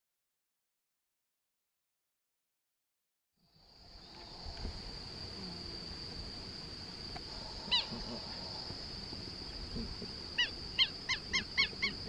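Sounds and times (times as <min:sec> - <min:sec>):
high-pitched insect drone: 0:03.4 - 0:12.0.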